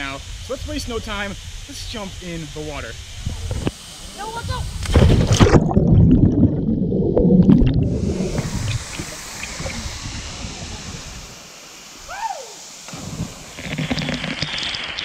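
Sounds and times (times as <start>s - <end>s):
waterfall rushing: 7.8s - 15.0s.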